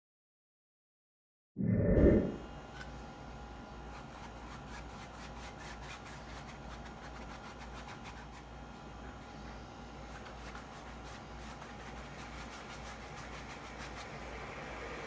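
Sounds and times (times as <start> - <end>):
low hum: 1.6 - 2.6
paintbrush scrubbing on canvas: 3.9 - 14.8.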